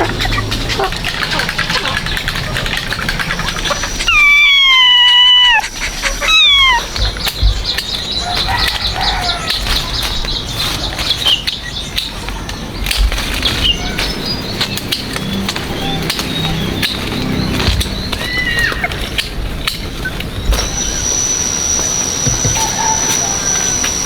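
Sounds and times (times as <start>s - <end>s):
piglet squealing: 0.0s - 9.9s, 20.0s - 24.0s
small clicks and chirps: 0.0s - 24.0s.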